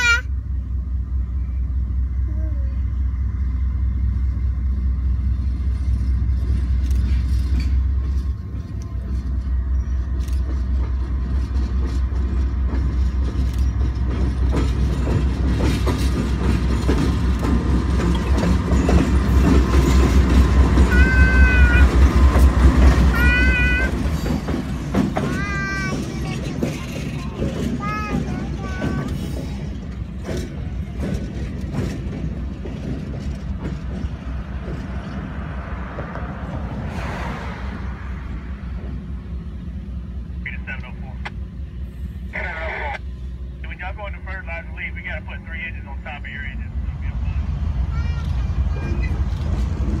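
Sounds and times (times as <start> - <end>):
diesel locomotive engine rumble: 0.0 - 50.0
wheels clattering on rail: 5.0 - 40.5, 47.6 - 50.0.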